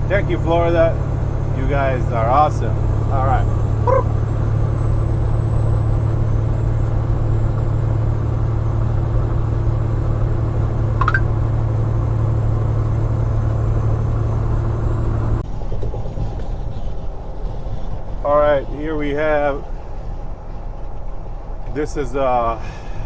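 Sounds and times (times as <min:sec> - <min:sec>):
diesel truck engine droning: 0:00.0 - 0:23.0
high rising chirp: 0:11.0 - 0:11.3.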